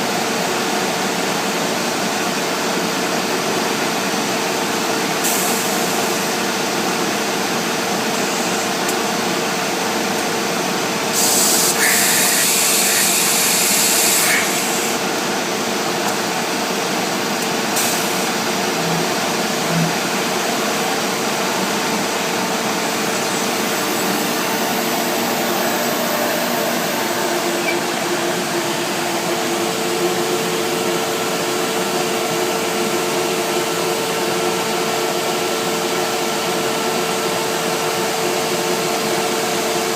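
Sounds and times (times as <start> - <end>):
loud hiss: 11.1 - 15.0
cnc router cutting with whine: 11.5 - 15.2, 17.1 - 34.9.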